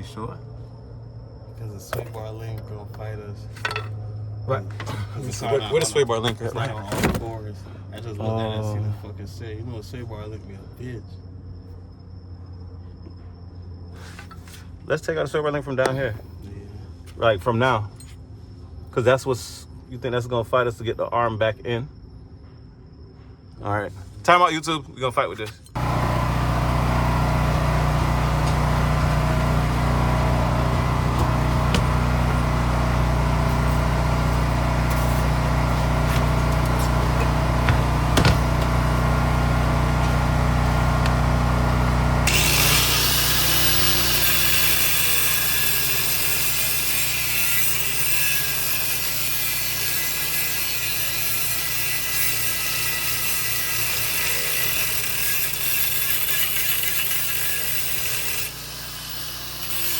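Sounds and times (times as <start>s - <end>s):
power tool running: 25.8s - 59.9s.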